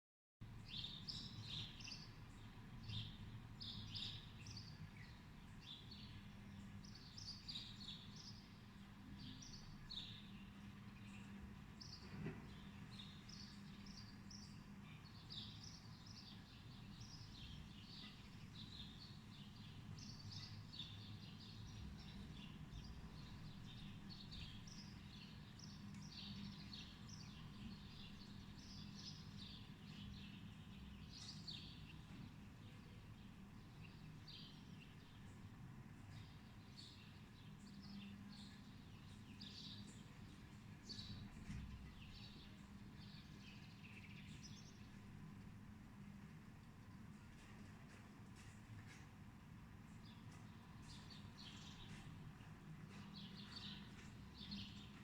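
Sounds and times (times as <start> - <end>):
small birds chirping: 0.5 - 55.0.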